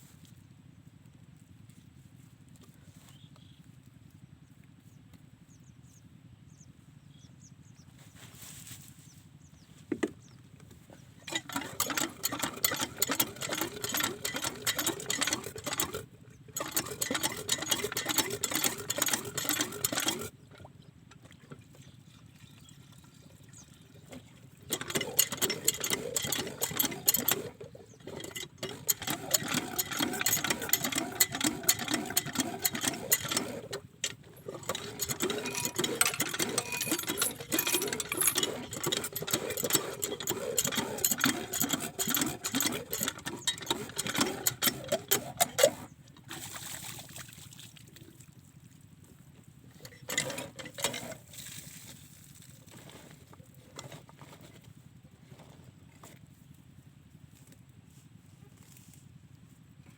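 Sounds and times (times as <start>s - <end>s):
diesel engine clattering: 9.5s - 21.1s, 24.1s - 46.2s.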